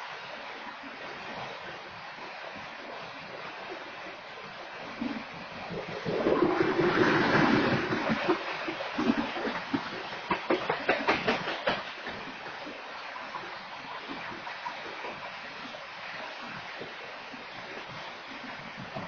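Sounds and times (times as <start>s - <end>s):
train wheel clacks: 9.6s - 12.7s.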